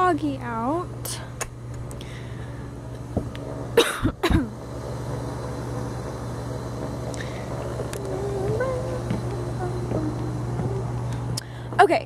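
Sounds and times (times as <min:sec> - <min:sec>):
low hum: 0:00.0 - 0:11.8
person coughing: 0:03.8 - 0:04.6.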